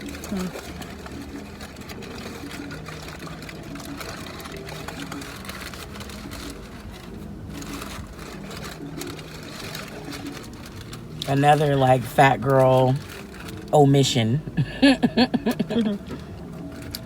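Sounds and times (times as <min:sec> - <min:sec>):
person chewing: 0:14.6 - 0:16.3.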